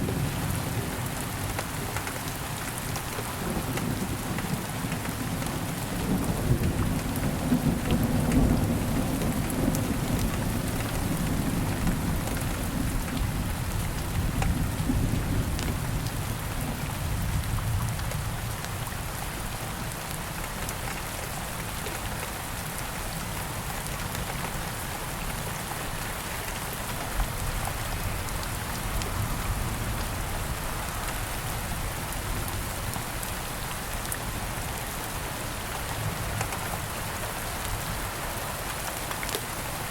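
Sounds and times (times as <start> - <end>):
rain falling: 0.0 - 39.9
small ticks and crackles: 38.6 - 39.5.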